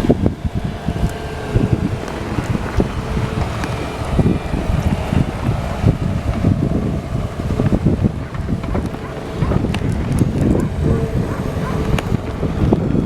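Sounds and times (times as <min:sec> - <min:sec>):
wind buffeting the microphone: 0:00.0 - 0:13.0.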